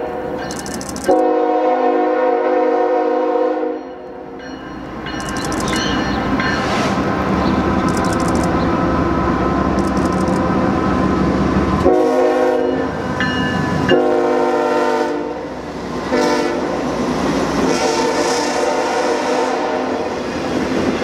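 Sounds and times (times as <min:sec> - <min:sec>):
locomotive air horn blasts: 0:01.1 - 0:03.8, 0:11.8 - 0:12.9, 0:13.9 - 0:15.5, 0:16.1 - 0:16.8, 0:17.6 - 0:20.2.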